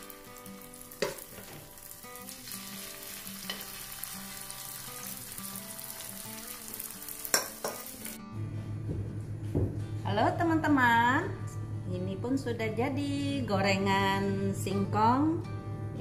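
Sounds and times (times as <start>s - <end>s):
batter sizzling in oil: 0.0s - 8.2s.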